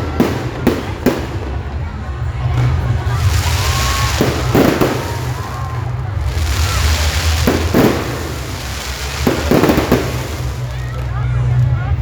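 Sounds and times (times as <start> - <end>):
fireworks banging and crackling: 0.0 - 12.0.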